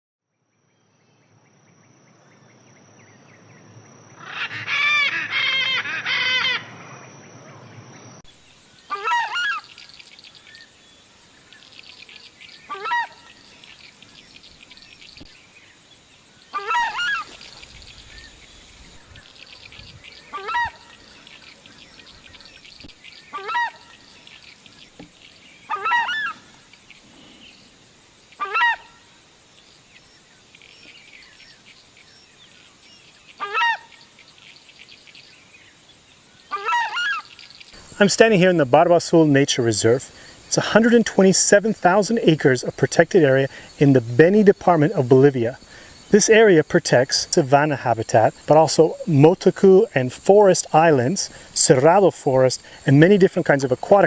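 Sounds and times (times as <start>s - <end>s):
bird honking calls: 4.2s - 6.7s, 8.8s - 9.8s, 12.6s - 13.7s, 16.5s - 18.4s, 19.0s - 22.6s, 23.2s - 24.0s, 25.6s - 26.4s, 28.4s - 29.1s, 33.4s - 34.0s, 36.5s - 37.4s.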